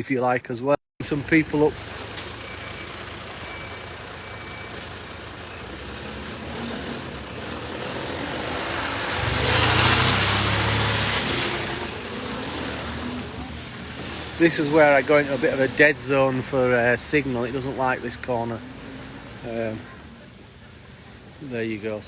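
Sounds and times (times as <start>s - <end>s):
vehicle passing on snowy street: 1.1s - 22.0s.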